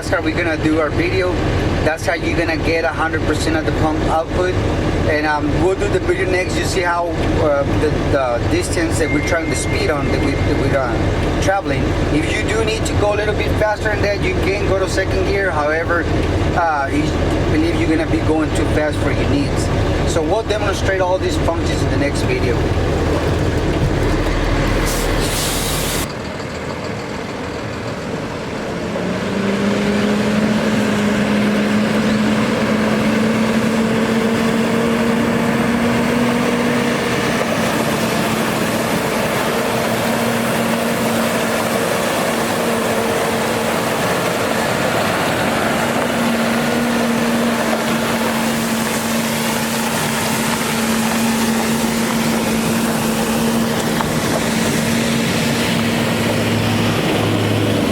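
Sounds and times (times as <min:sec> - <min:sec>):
diesel engine speeding up: 0:00.0 - 0:57.9
constant rushing noise: 0:30.6 - 0:57.9.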